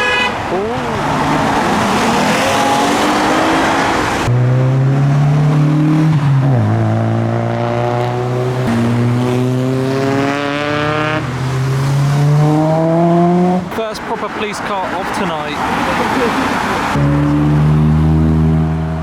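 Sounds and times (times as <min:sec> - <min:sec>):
car engine accelerating past: 0:01.0 - 0:13.6, 0:16.8 - 0:19.0.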